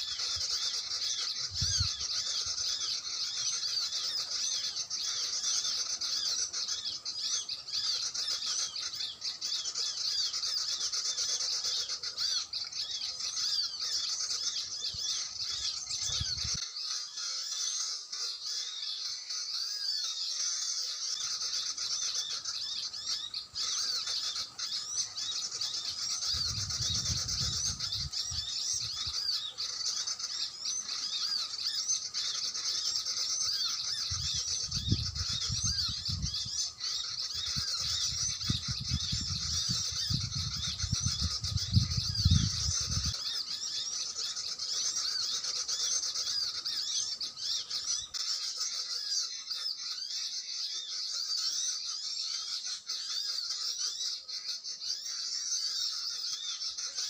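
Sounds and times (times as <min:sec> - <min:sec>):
sunbirds chirping and twittering: 0:00.0 - 0:57.0.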